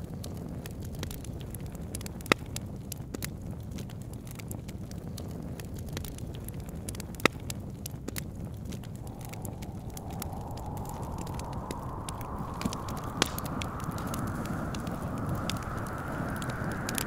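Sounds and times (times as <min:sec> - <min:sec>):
low rumble of wind: 0:00.0 - 0:17.0
wood fire crackling and popping: 0:00.0 - 0:17.0
wind howling: 0:08.6 - 0:17.0.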